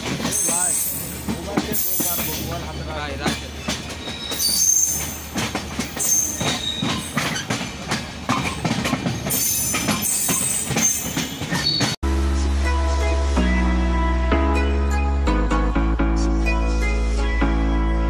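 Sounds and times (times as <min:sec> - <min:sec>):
train wheels clacking: 0:00.0 - 0:12.0
steady train rumble: 0:00.0 - 0:13.6
high-pitched wheel squeals: 0:04.0 - 0:05.2, 0:06.0 - 0:07.5
music: 0:12.0 - 0:18.0.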